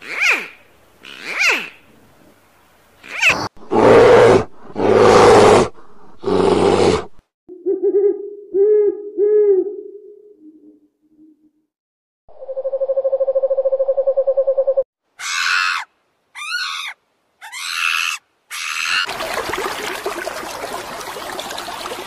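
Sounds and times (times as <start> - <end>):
animal squeals: 0.0 - 1.8, 3.0 - 4.4, 15.2 - 19.1
animal roars: 3.3 - 7.2.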